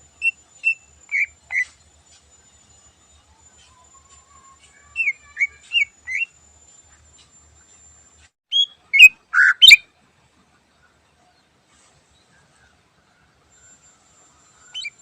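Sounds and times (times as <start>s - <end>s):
bird singing whistled notes: 0.1s - 1.8s, 3.4s - 7.4s, 8.5s - 9.9s, 13.5s - 15.0s.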